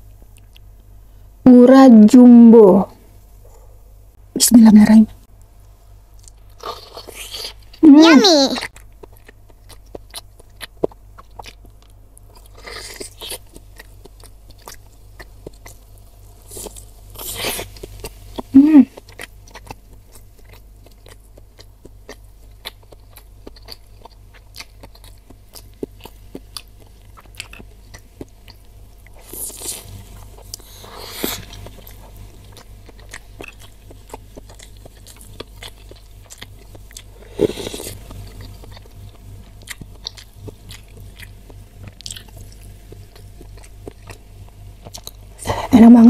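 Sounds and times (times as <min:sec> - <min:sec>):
wet chewing with mouth clicks: 0:08.6 - 0:45.5.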